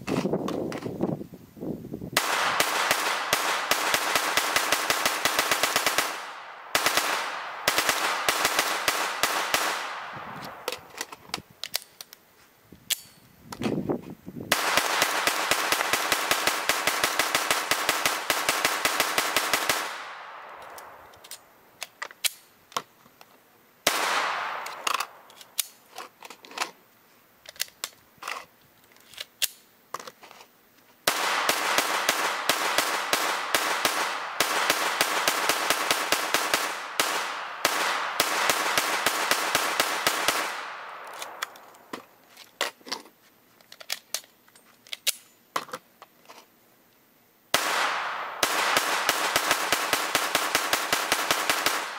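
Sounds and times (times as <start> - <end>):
rifle firing shots: 2.2 - 10.9, 14.5 - 21.2, 23.9 - 25.3, 31.1 - 41.9, 47.5 - 51.9.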